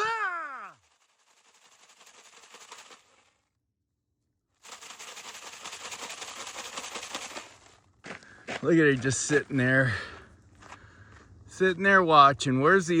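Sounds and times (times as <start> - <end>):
crackling and crunching on gravel: 4.6 - 11.4.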